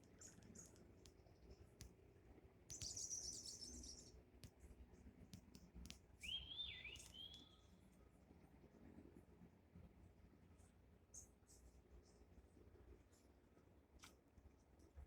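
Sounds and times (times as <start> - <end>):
small clicks: 2.7 - 3.5, 5.4 - 6.0, 6.9 - 7.4
high twittering bird trill: 2.7 - 4.1, 6.2 - 7.7
whistled bird phrase: 6.2 - 7.7.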